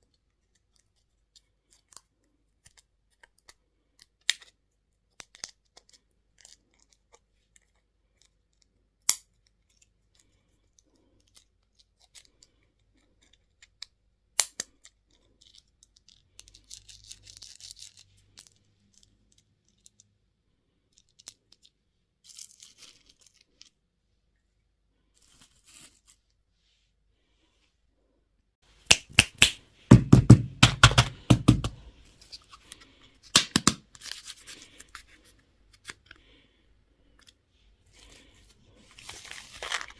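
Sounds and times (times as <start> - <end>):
packaging crinkling and tearing: 32.2 - 36.2, 38.0 - 39.9.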